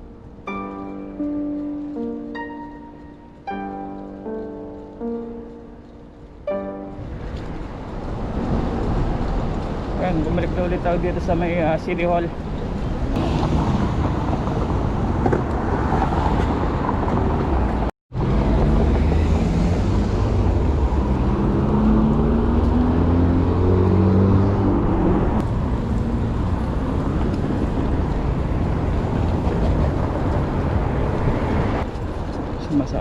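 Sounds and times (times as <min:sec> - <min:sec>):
street traffic rumble: 0:00.0 - 0:33.0
vehicle engine accelerating: 0:13.0 - 0:31.9.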